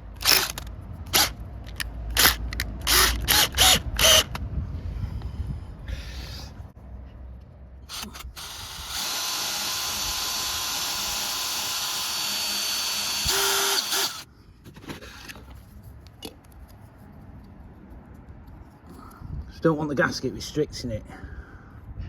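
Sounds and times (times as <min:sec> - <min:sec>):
electric drill running: 0:02.2 - 0:04.4, 0:07.9 - 0:14.2.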